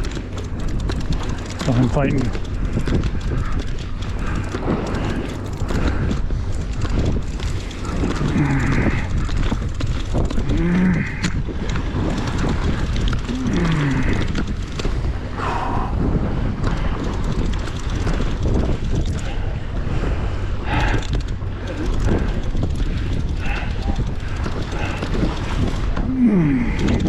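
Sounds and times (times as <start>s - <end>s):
wind buffeting microphone: 0.0s - 27.0s
low falling voice-like sounds: 25.9s - 27.0s.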